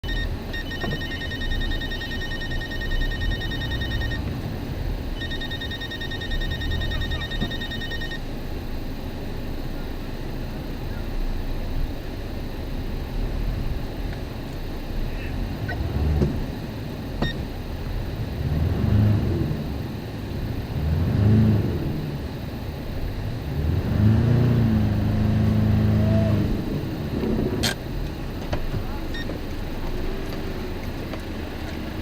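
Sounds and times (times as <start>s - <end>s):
electronic telephone ringer trilling: 0.0s - 4.2s, 5.2s - 8.2s.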